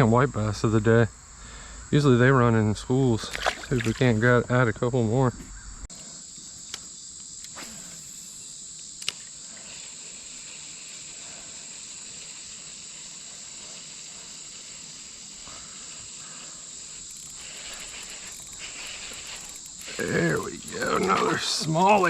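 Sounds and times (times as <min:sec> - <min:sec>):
high-pitched insect chorus: 0:00.0 - 0:22.0
sharp click: 0:09.0 - 0:09.2.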